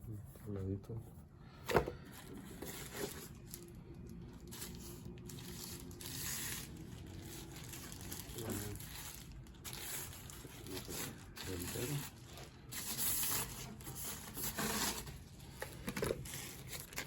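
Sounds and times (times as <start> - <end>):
packaging rustling and crinkling: 1.7 - 17.0.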